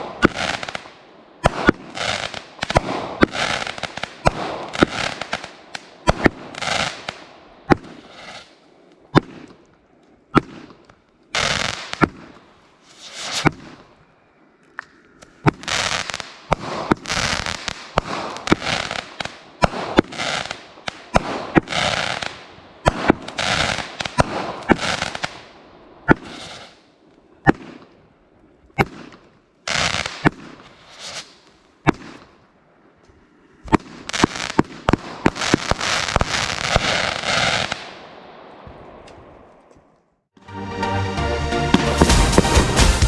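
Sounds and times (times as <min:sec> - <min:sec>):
crackling firework stars: 0:00.0 - 0:40.3, 0:41.5 - 0:43.0
firework launch and break reports: 0:11.4 - 0:13.9, 0:41.5 - 0:43.0.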